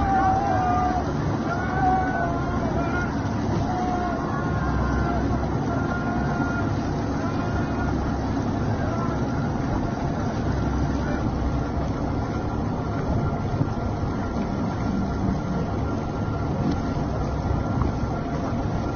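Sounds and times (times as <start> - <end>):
boat engine droning: 0.0 - 18.9.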